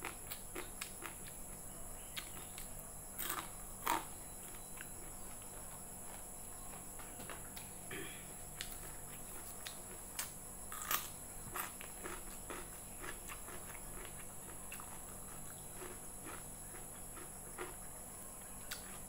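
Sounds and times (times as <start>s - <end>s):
chewing with crisp clicks: 0.0s - 5.5s, 8.6s - 19.0s
crunching bite into cucumber: 2.1s - 4.1s, 8.6s - 17.8s.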